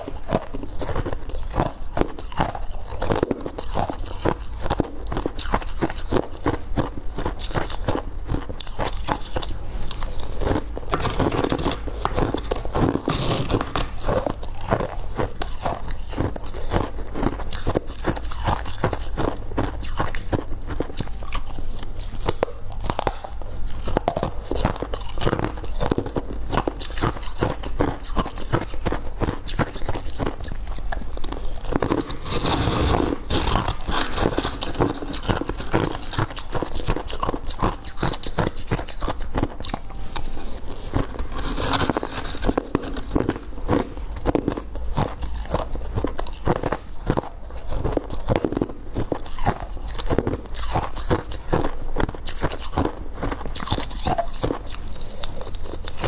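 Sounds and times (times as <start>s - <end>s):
person crunching ice: 5.1s - 15.4s, 29.5s - 49.2s.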